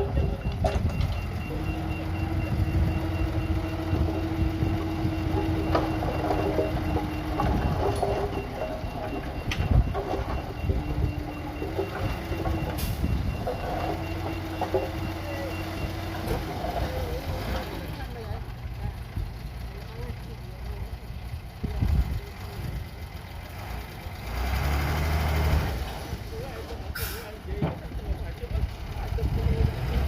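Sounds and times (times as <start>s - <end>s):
reversing alarm beeping: 0.0s - 18.0s
heavy diesel machinery rumbling: 0.0s - 30.0s.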